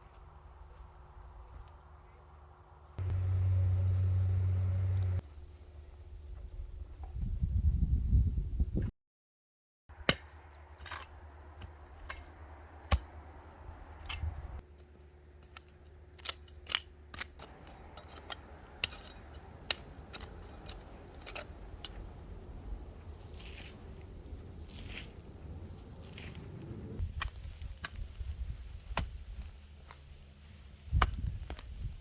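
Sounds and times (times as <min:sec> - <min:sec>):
low steady hum: 0:00.1 - 0:07.0, 0:10.2 - 0:27.3.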